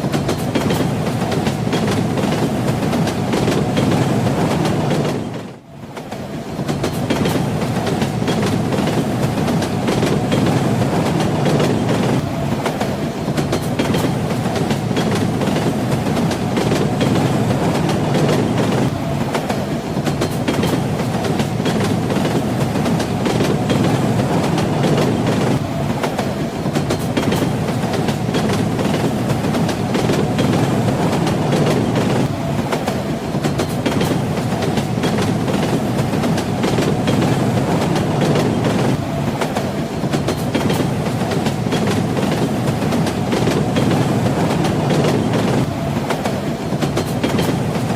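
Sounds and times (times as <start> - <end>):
train wheels rumbling: 0.0 - 47.9
wheels clicking over rail joints: 6.0 - 47.9.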